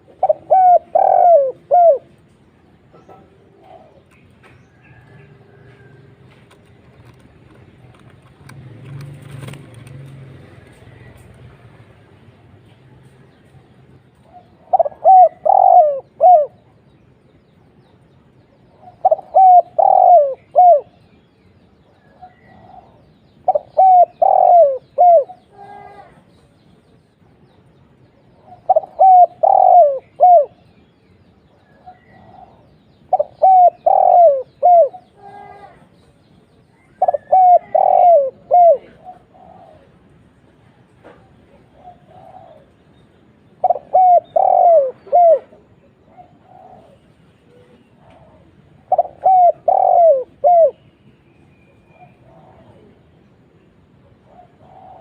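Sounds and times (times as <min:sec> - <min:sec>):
dove cooing: 0:00.0 - 0:06.2, 0:14.2 - 0:16.8, 0:18.7 - 0:21.0, 0:22.1 - 0:26.2, 0:28.4 - 0:30.7, 0:31.7 - 0:35.8, 0:36.8 - 0:40.4, 0:41.5 - 0:42.8, 0:43.5 - 0:50.8, 0:51.9 - 0:53.1, 0:54.0 - 0:55.0.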